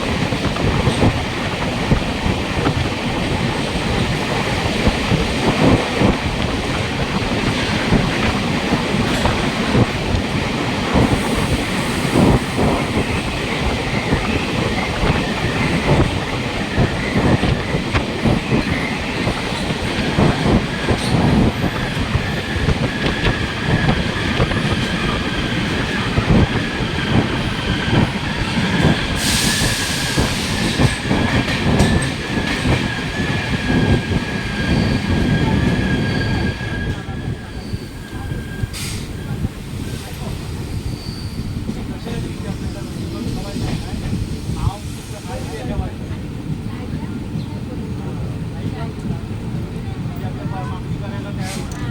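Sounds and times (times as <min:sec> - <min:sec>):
train wheels knocking on rail joints: 0:00.0 - 0:37.7.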